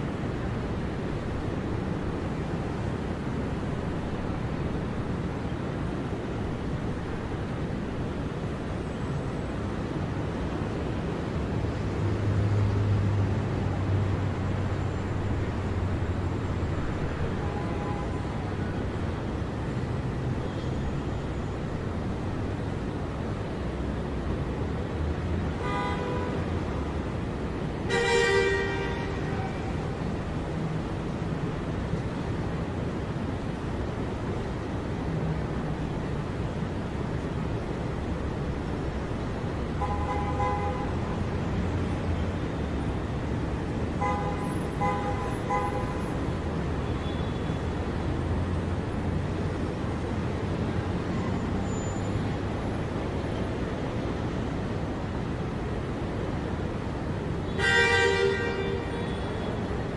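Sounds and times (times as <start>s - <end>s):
city traffic rumbling: 0.0s - 59.9s
car horn honks: 27.9s - 29.5s, 57.6s - 59.4s.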